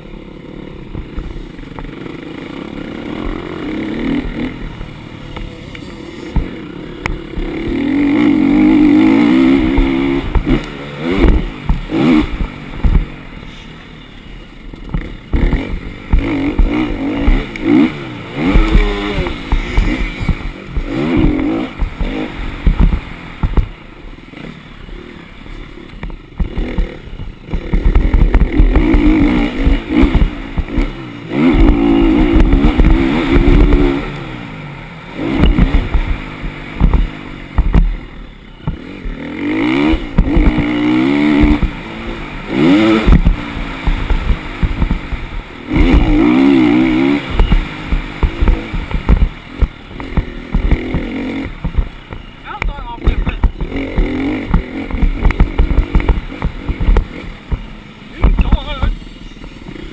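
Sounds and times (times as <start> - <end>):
dirt bike engine revving: 0.0 - 59.9
heavy low thuds and rattles: 6.3 - 13.3, 14.8 - 17.6, 18.4 - 23.8, 26.0 - 34.0, 35.3 - 38.0, 39.8 - 42.2, 42.8 - 59.6.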